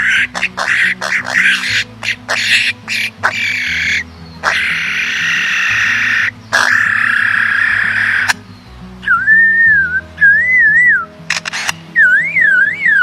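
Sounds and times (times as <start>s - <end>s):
background music with bassline: 0.0s - 13.0s
harsh rasping bird calls: 0.0s - 13.0s.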